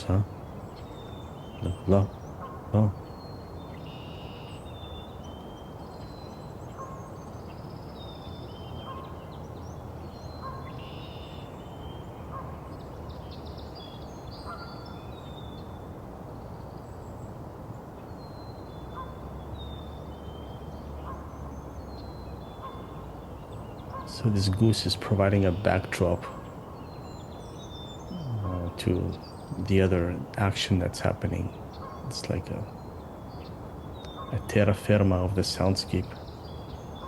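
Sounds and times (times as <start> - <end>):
songbirds whistling: 0.0 - 15.9, 18.2 - 37.0
low background noise: 0.0 - 37.0.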